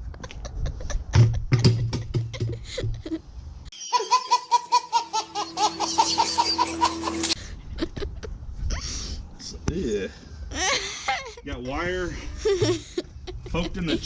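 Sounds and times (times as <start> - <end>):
rapid high-pitched laughs: 0.0 - 8.3
person laughing: 0.0 - 8.4, 10.5 - 11.4, 12.2 - 14.0.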